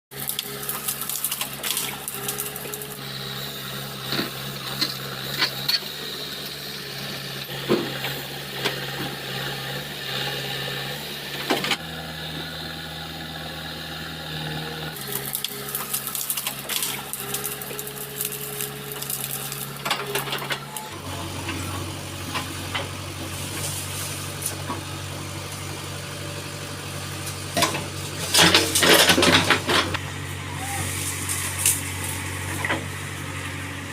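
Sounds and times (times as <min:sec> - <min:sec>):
diesel engine droning: 0:00.1 - 0:33.9
clanks and rattles: 0:27.5 - 0:30.0.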